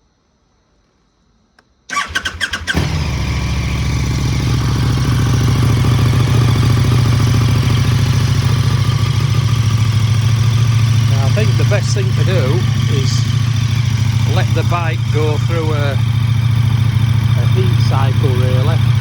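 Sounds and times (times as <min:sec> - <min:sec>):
starter motor cranking: 0:01.9 - 0:03.2
motorcycle engine idling: 0:01.9 - 0:19.0.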